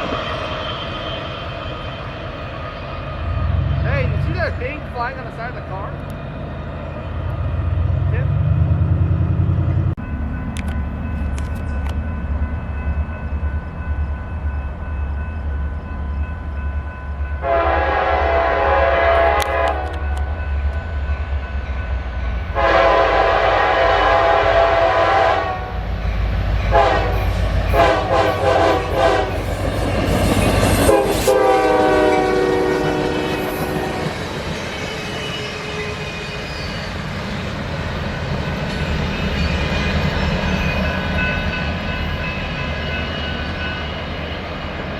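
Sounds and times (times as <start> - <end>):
locomotive air horn blasts: 17.4 - 20.0, 22.6 - 25.8, 26.7 - 29.4, 30.9 - 34.1.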